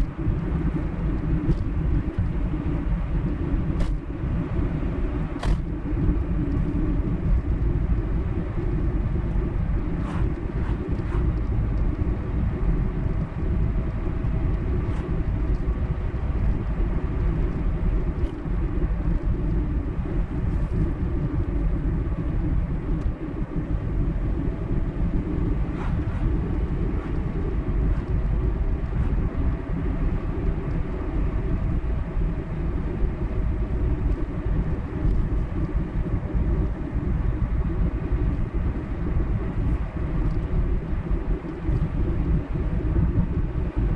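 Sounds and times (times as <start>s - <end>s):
car tyres and engine rumble: 0.0s - 43.9s.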